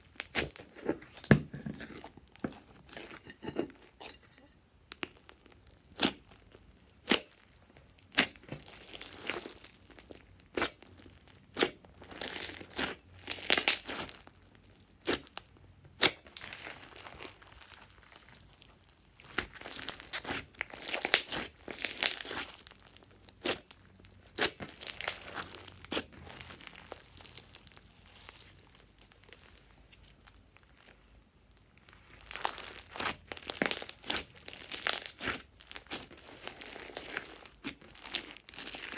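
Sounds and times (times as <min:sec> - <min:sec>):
slime squishing and popping: 0:08.1 - 0:18.4, 0:19.2 - 0:29.6, 0:32.0 - 0:38.9.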